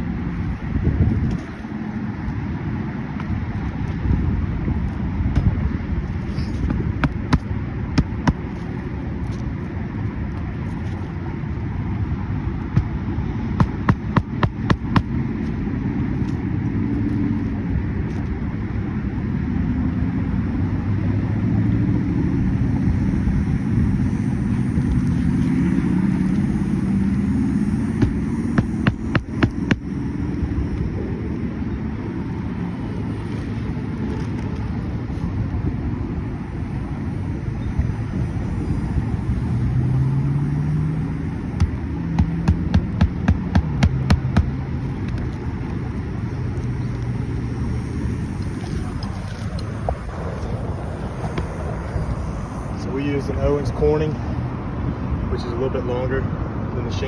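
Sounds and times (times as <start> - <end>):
steady low rumble: 0.0 - 57.0
sharp knocks: 6.7 - 8.5, 13.6 - 15.1, 28.0 - 29.9, 41.6 - 44.6.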